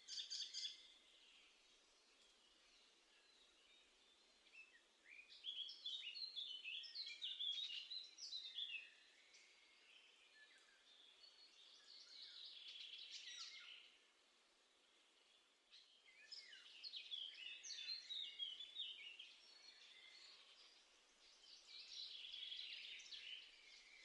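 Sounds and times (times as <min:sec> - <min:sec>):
faint background hiss: 0:00.0 - 0:24.0
small songbird singing: 0:00.0 - 0:24.0.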